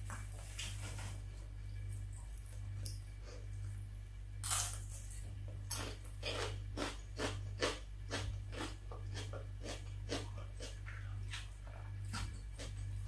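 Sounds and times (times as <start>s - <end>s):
steady low hum: 0.0s - 13.0s
crunchy chewing: 4.4s - 13.0s.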